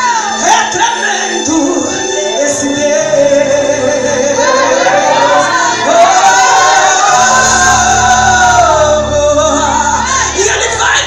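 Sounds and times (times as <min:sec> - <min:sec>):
live band playing gospel: 0:00.0 - 0:11.0.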